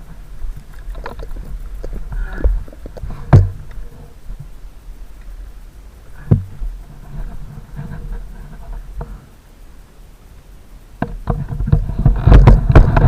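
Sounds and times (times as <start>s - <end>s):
sharp knocks and thumps: 0.8s - 3.8s, 6.2s - 9.2s, 11.0s - 13.0s.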